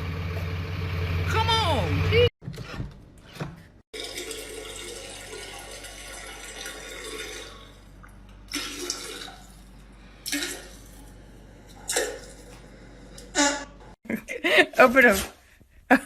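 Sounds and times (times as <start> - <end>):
water running: 3.9 - 13.3.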